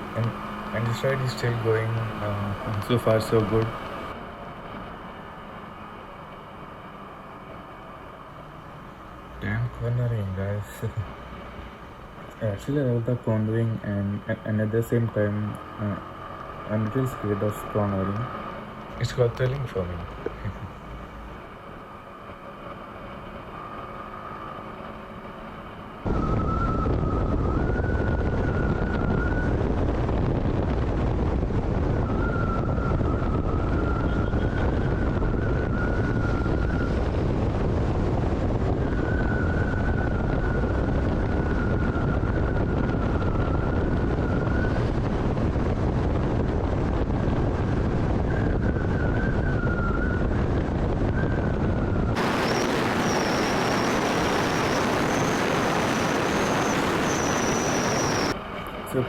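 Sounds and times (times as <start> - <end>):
motorcycle high whine: 0.0 - 59.0
wind rush on microphone: 26.0 - 59.0.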